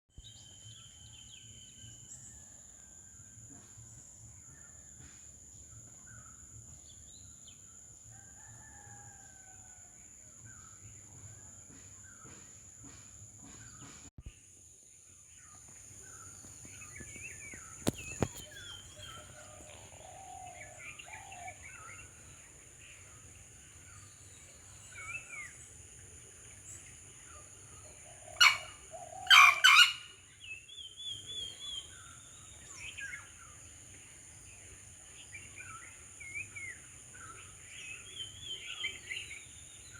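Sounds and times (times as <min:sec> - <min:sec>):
birds chirping and calling: 0:27.6 - 0:33.0
junglefowl crowing: 0:28.3 - 0:30.1.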